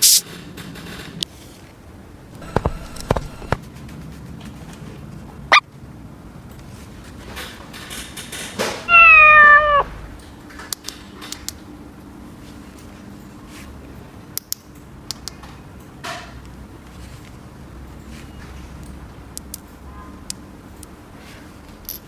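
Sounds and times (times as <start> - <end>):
cat meowing: 8.9 - 10.2.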